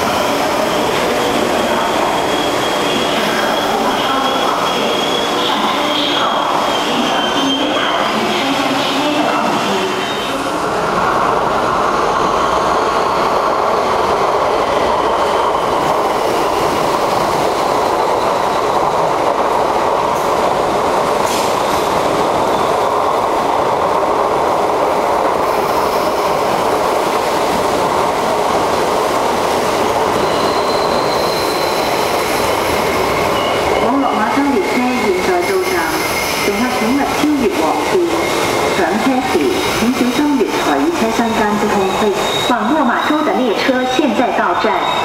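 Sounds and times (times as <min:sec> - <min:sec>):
train wheels rumbling on rail: 0:00.0 - 0:45.0
faint high squeals: 0:00.2 - 0:08.6, 0:30.0 - 0:36.5, 0:41.2 - 0:43.4, 0:44.6 - 0:45.0.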